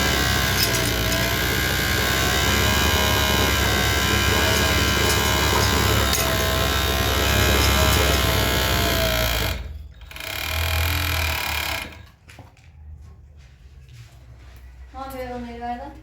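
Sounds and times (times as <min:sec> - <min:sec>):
electric sewing machine running: 0:00.0 - 0:12.1.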